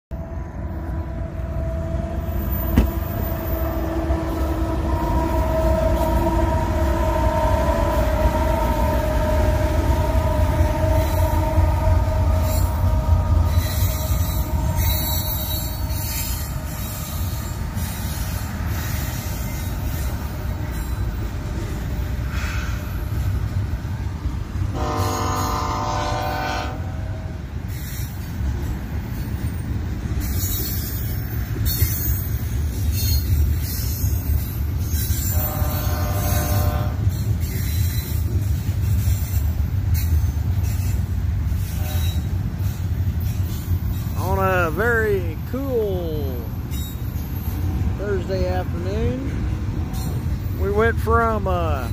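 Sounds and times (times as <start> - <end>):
freight train rumbling: 0.1 - 51.9
train horn blast: 0.6 - 17.5, 24.7 - 27.4, 35.2 - 37.2, 41.6 - 42.4.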